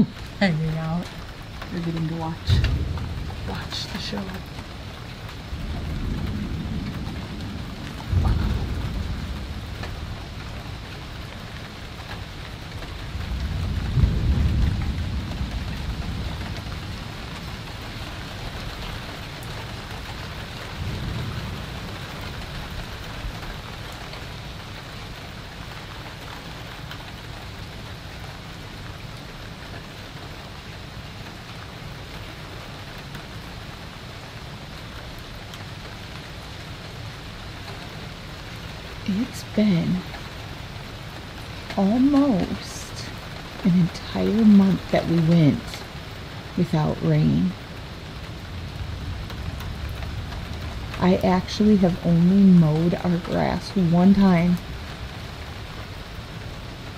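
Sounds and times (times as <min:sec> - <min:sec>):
thunder rumbling: 0:00.0 - 0:28.1, 0:38.5 - 0:56.9
heavy rain falling: 0:00.0 - 0:56.9
thunder clap: 0:01.6 - 0:10.9, 0:13.1 - 0:23.9.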